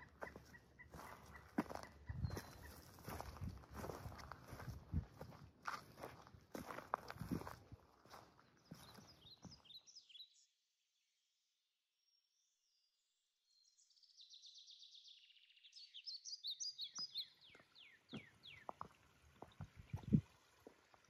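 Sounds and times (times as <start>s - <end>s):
songbird singing: 0.0s - 5.2s, 6.0s - 10.7s, 12.0s - 21.0s
footsteps on a trail: 0.0s - 9.8s, 16.8s - 21.0s.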